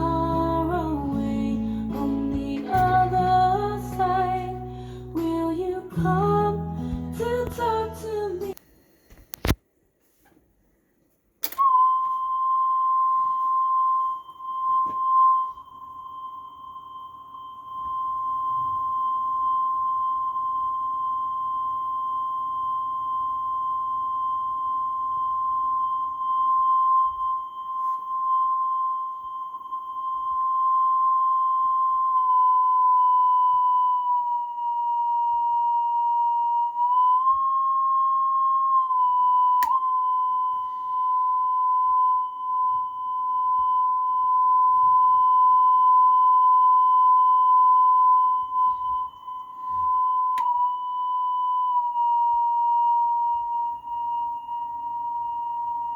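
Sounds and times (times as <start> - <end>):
steady test tone from tape deck: 0.0 - 10.4, 11.4 - 55.9
sharp click: 11.4 - 11.7.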